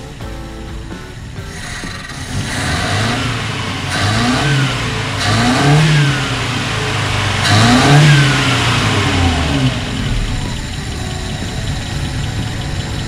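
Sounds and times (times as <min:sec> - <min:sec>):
car engine revving and idling: 0:00.0 - 0:13.0.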